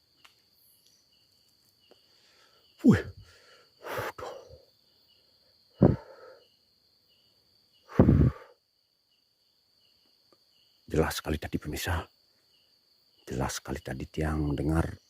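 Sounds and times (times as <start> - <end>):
faint insect chirp: 0.0 - 15.0
insects trilling: 0.0 - 15.0
man exclaiming or sighing: 2.8 - 4.6.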